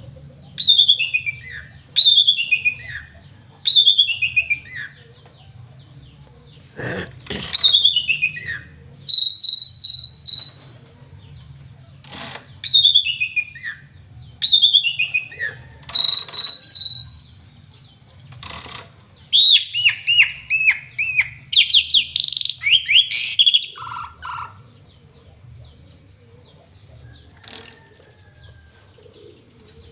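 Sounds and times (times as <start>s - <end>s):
starling singing whistles: 9.1s - 10.6s, 12.6s - 13.7s, 19.3s - 23.9s.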